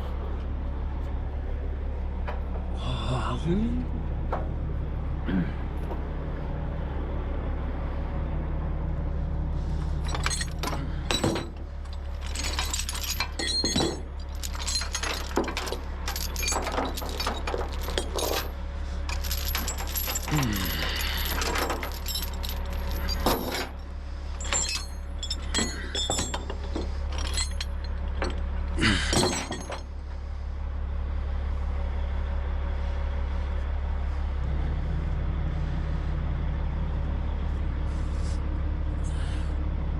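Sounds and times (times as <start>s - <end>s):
truck engine idling: 0.0s - 39.9s
metal chains clanking: 9.9s - 30.0s.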